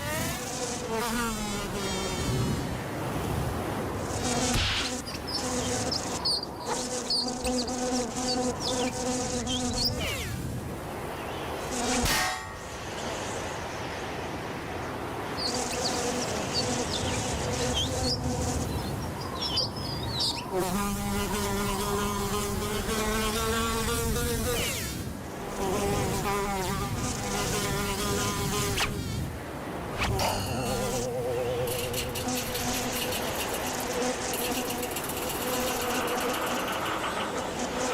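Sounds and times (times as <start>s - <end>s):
cartoon insect wing buzzing: 30.0s - 37.9s.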